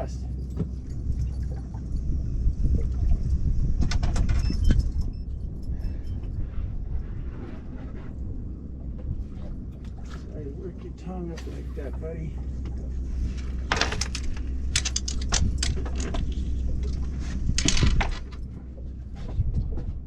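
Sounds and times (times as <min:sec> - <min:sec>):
boat engine idling: 0:05.3 - 0:20.0
clicks and clatter from handling: 0:13.3 - 0:18.6.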